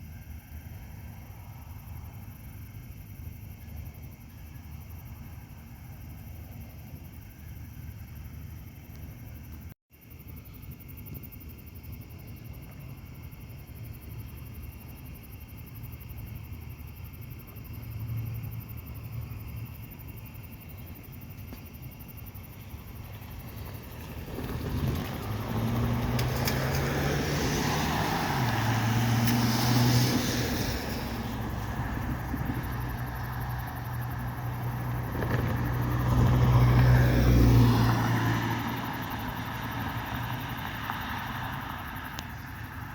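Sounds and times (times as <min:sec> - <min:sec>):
road vehicle passing: 0:21.8 - 0:42.9.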